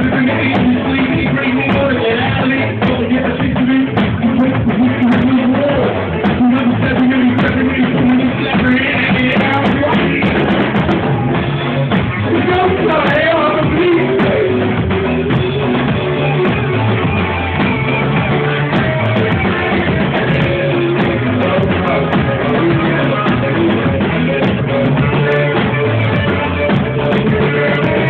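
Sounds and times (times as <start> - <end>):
drum kit: 0.0 - 28.0
guitar: 0.0 - 28.0
person singing: 0.0 - 28.0.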